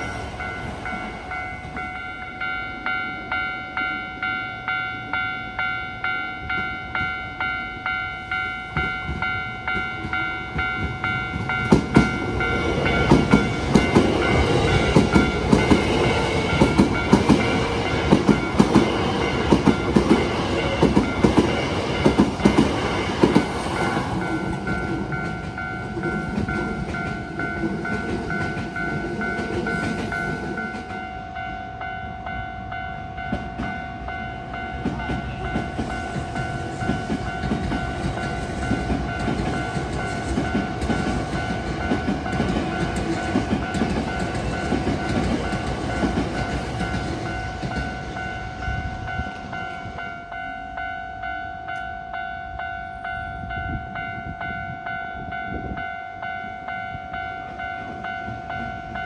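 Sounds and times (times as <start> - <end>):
level-crossing alarm ringing: 0.0 - 59.0
train wheels clacking over rail joints: 8.7 - 31.0, 34.8 - 48.2.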